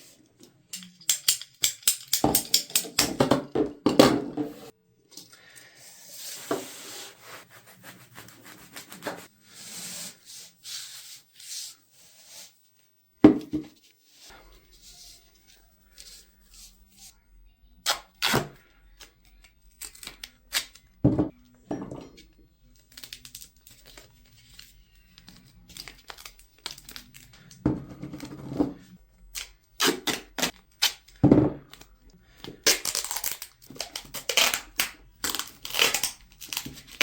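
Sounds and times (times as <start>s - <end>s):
hands rubbing and scraping: 5.8s - 12.6s.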